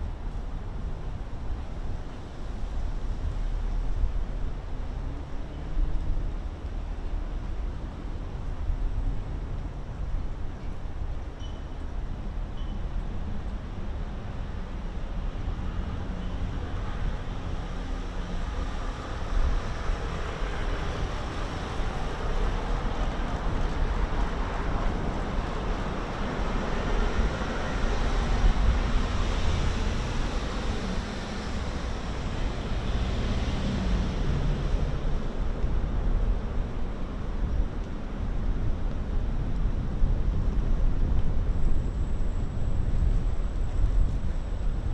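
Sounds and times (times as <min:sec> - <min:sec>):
distant traffic rumble: 0:13.4 - 0:44.9.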